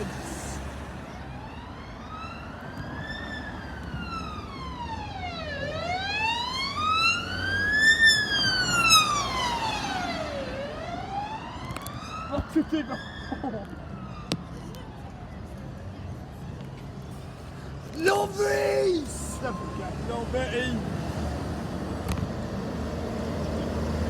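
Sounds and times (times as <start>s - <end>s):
ambulance siren wailing: 1.3s - 14.3s.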